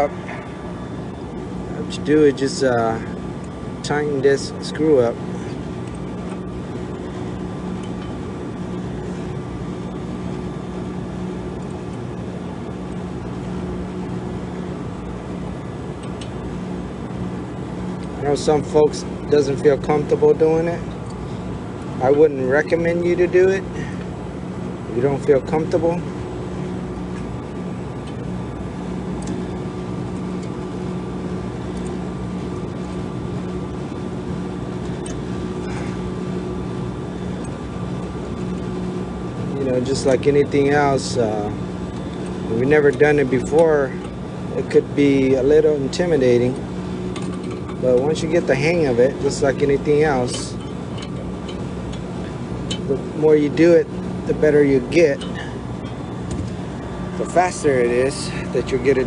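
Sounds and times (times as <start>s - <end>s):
refrigeration machinery humming: 0.0s - 59.0s.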